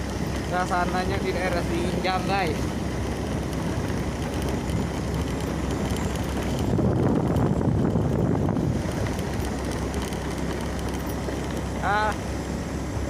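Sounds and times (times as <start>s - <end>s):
low rumbling noise: 0.0s - 13.0s
wind on microphone: 3.3s - 10.9s.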